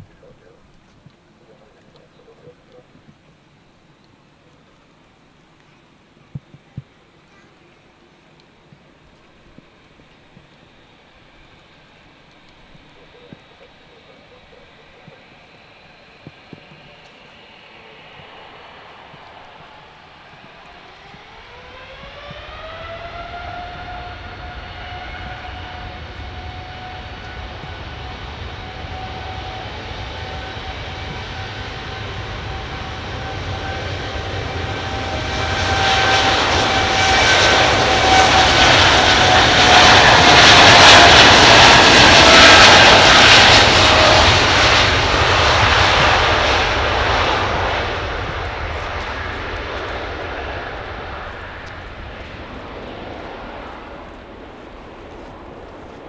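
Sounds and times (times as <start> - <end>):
jet engine whine: 0.0 - 56.0
jet engine roar: 7.0 - 56.0.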